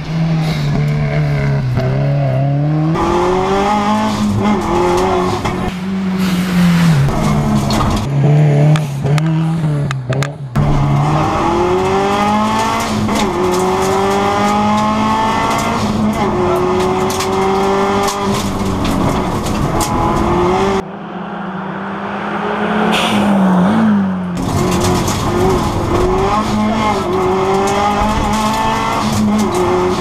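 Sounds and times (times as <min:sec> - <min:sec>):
rally car engine revving hard: 0:00.0 - 0:20.8, 0:22.0 - 0:30.0.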